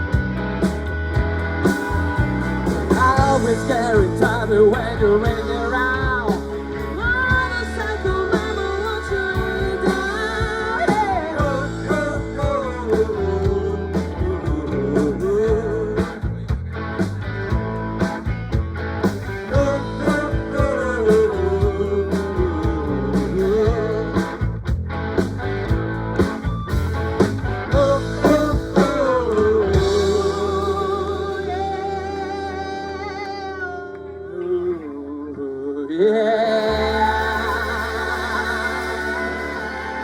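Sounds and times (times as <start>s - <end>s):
steady drum beat: 0.0s - 30.8s
lead guitar with bent notes: 0.0s - 35.4s, 36.5s - 40.0s
bass guitar: 0.0s - 40.0s.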